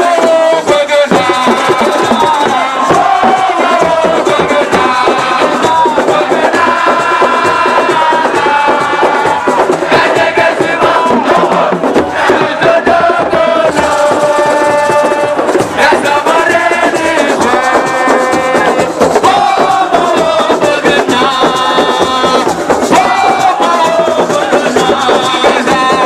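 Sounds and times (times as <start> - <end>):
voices singing and chanting: 0.0 - 26.0
shaken rattle: 13.5 - 26.0.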